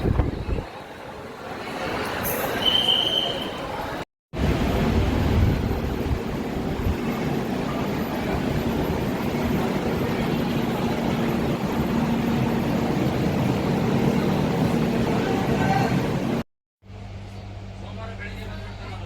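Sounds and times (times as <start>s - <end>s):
train rumbling: 3.7s - 16.4s.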